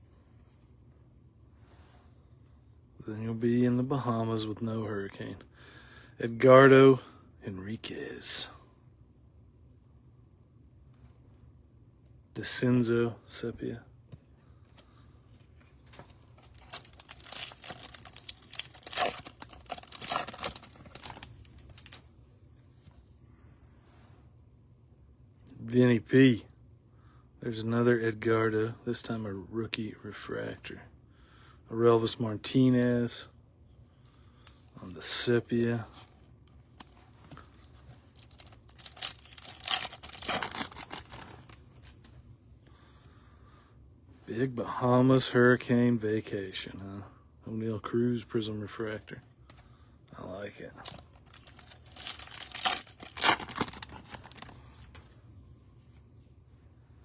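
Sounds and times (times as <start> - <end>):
wrapper crinkling and tearing: 15.9 - 22.0, 36.8 - 42.1, 50.6 - 55.0.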